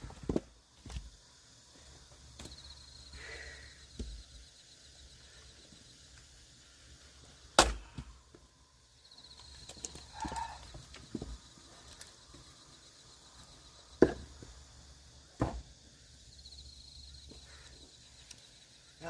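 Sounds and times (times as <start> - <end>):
axe splitting a log: 7.6 - 8.1, 14.0 - 14.3, 15.4 - 15.7.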